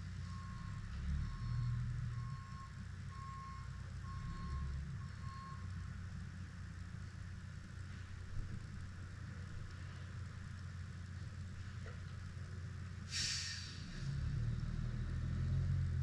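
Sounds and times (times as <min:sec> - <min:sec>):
idling engine rumble: 0:00.0 - 0:16.0
vehicle back-up alarm beeping: 0:00.1 - 0:05.8.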